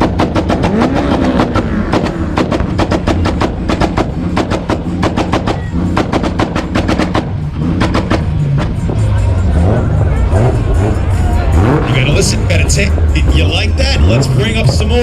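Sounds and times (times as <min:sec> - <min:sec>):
exhaust pops and bangs: 0:00.0 - 0:09.2
car engine at steady revs: 0:00.0 - 0:15.0.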